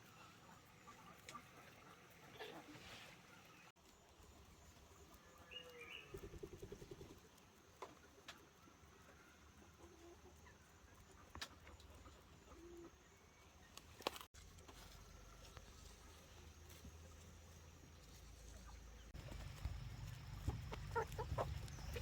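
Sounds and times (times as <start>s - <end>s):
faint clucking animal call: 0.0s - 3.6s, 18.6s - 22.0s.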